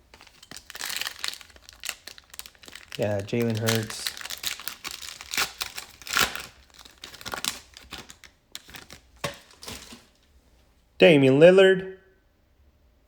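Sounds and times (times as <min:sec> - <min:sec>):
plastic wrapper crinkling: 0:00.0 - 0:10.3.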